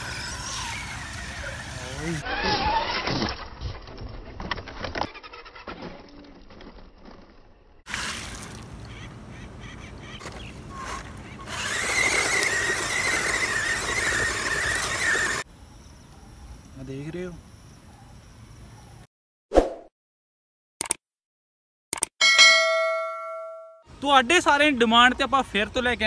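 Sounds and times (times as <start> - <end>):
rc truck motor whine: 0.0 - 3.6, 10.7 - 15.5
driving through mud puddle: 10.7 - 15.4.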